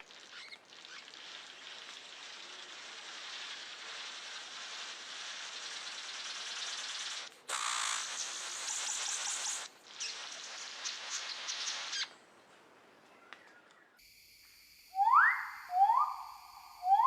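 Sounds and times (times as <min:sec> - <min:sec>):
steady hiss: 0:00.0 - 0:12.2, 0:14.0 - 0:17.0
bird calls rising in pitch: 0:14.9 - 0:17.0.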